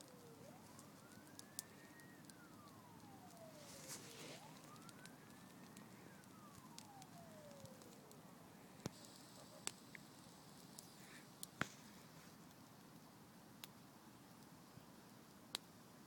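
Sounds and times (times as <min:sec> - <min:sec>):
siren wailing: 0:00.0 - 0:10.4.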